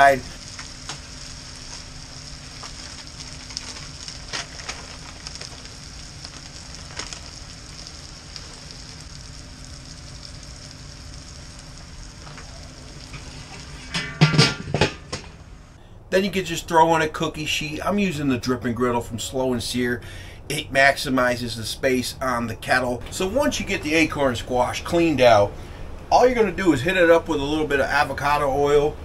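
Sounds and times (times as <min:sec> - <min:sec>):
small crackles: 0:00.0 - 0:14.1
food sizzling in a skillet: 0:00.0 - 0:14.8.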